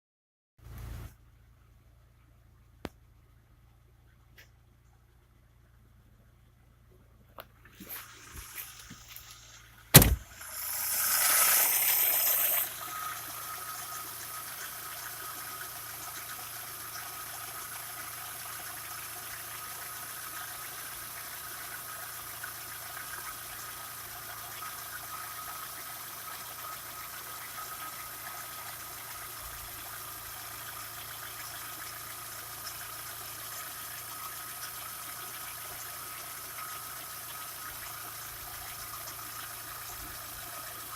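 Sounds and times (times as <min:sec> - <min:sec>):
car engine starting and idling: 0:00.6 - 0:40.9
sharp click: 0:10.0 - 0:10.4.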